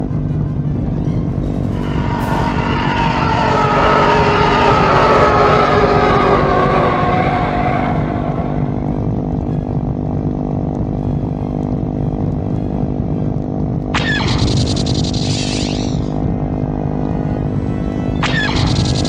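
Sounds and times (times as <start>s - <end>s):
high-pitched shriek: 1.5s - 9.4s, 13.9s - 16.3s, 18.1s - 19.0s
higher-pitched sound: 1.7s - 9.2s, 14.0s - 16.2s.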